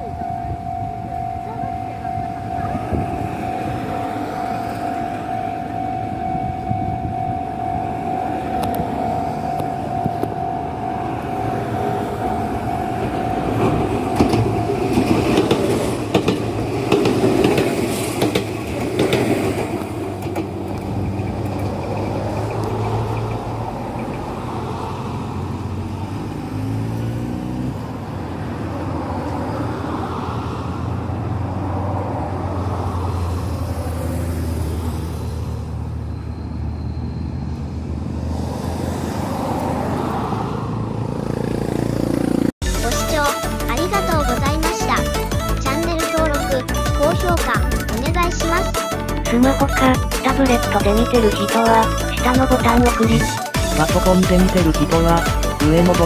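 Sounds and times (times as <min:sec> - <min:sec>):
level crossing warning bell: 0:00.0 - 0:20.1, 0:42.8 - 0:56.0
road vehicles idling: 0:00.0 - 0:56.0
train wheels clattering: 0:13.5 - 0:24.3.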